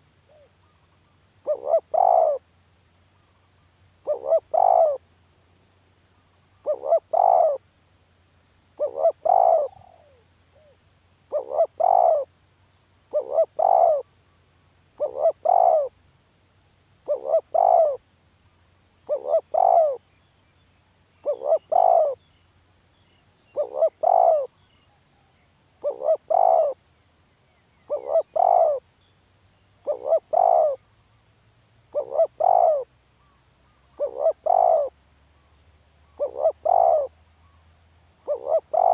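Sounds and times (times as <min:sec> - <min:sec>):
dove cooing: 0:01.4 - 0:02.4, 0:04.0 - 0:05.0, 0:06.6 - 0:07.6, 0:08.8 - 0:12.3, 0:13.1 - 0:14.1, 0:15.0 - 0:16.0, 0:17.0 - 0:18.0, 0:19.0 - 0:20.0, 0:21.2 - 0:22.2, 0:23.5 - 0:24.7, 0:25.8 - 0:26.8, 0:27.9 - 0:28.8, 0:29.8 - 0:30.8, 0:31.9 - 0:32.9, 0:33.9 - 0:35.0, 0:36.2 - 0:37.6, 0:38.2 - 0:38.9.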